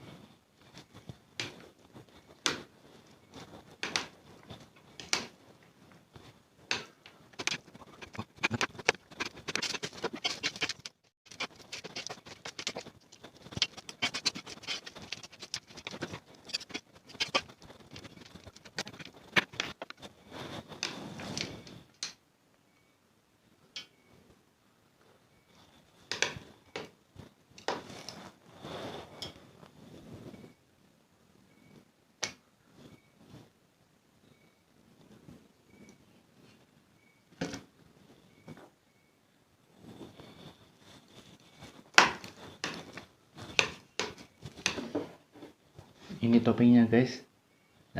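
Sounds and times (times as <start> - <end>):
chewing: 7.3 - 20.0
noodle slurping: 7.4 - 20.0.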